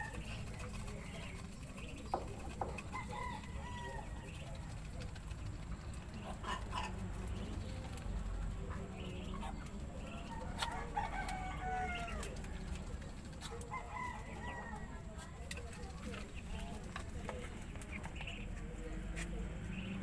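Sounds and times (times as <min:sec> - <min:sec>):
chickens clucking: 0:00.0 - 0:20.0
rooster crowing: 0:10.6 - 0:12.4.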